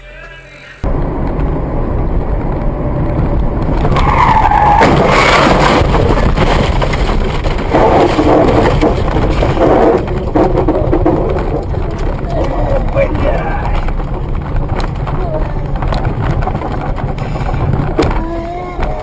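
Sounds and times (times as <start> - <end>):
road and engine noise: 0.8 - 19.0
tyres squealing: 3.9 - 6.0, 7.4 - 19.0.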